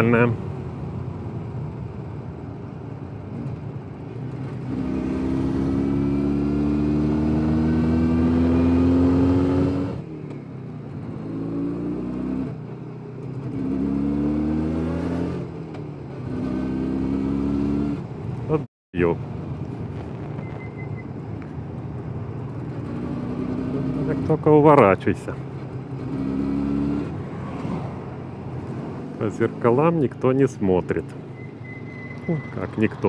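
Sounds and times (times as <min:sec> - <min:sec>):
motorcycle engine accelerating: 0:03.3 - 0:10.2, 0:10.9 - 0:18.2, 0:22.4 - 0:24.4, 0:25.4 - 0:29.8.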